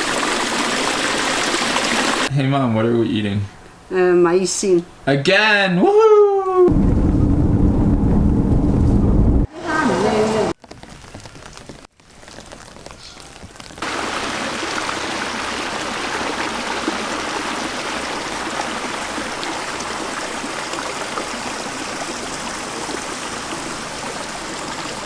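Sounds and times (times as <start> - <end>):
rushing water: 0.0 - 2.3, 13.8 - 25.0.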